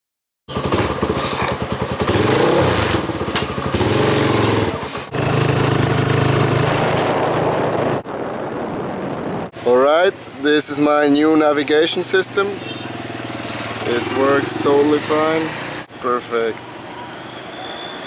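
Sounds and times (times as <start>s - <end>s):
motorcycle engine revving: 0.5s - 8.0s, 11.8s - 15.9s.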